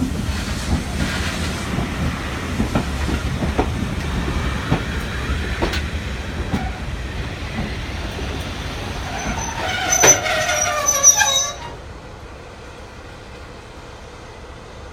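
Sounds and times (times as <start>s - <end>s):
train wheels clicking over rail joints: 0.0s - 11.9s
train rumble: 0.0s - 14.9s
wheel squealing: 8.8s - 11.8s.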